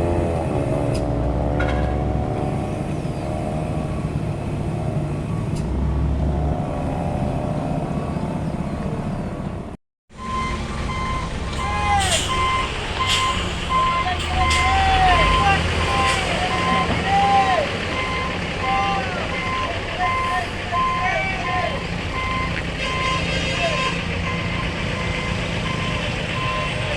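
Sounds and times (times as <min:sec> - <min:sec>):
truck diesel engine running: 0:02.4 - 0:26.9
reversing alarm beeping: 0:10.2 - 0:26.9
air brake hisses: 0:12.0 - 0:13.7.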